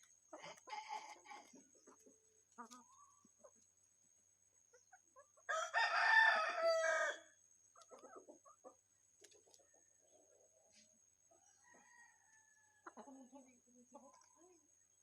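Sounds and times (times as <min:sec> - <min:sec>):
rooster crowing: 0:05.5 - 0:07.3.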